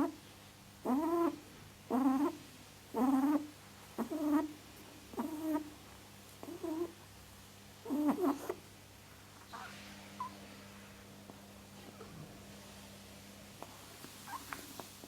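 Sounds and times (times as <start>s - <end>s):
animal short pitched calls: 14.2s - 14.5s.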